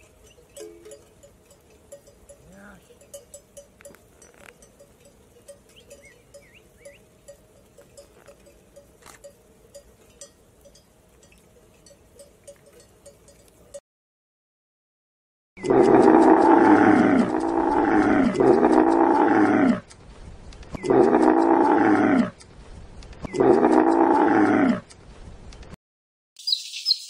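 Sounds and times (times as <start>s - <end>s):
sheep bells clinking: 0.0s - 13.8s, 15.6s - 19.1s.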